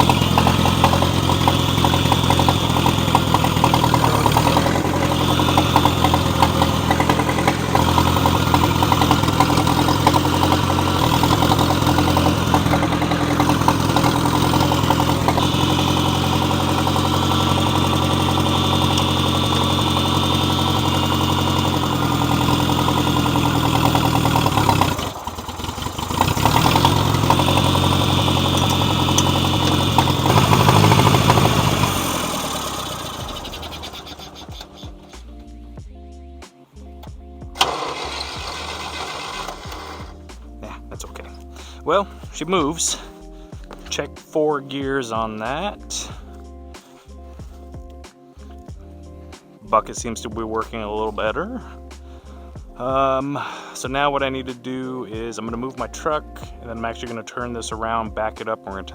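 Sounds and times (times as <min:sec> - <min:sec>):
tractor engine running: 0:00.0 - 0:35.5, 0:37.0 - 0:44.2.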